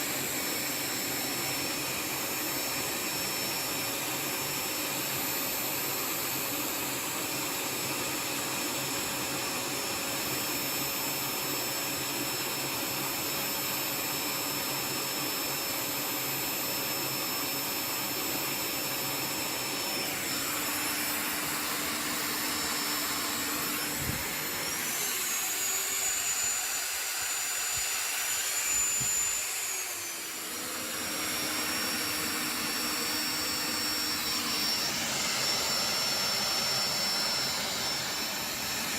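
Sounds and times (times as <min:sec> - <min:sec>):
vacuum cleaner and drill whirring: 0:00.0 - 0:38.9
high whine: 0:20.0 - 0:34.9.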